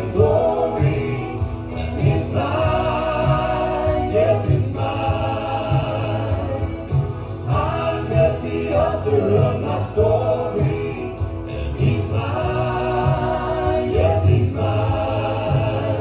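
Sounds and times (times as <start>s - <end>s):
group singing gospel song: 0.0s - 16.0s
instrumental accompaniment with bass: 0.0s - 16.0s.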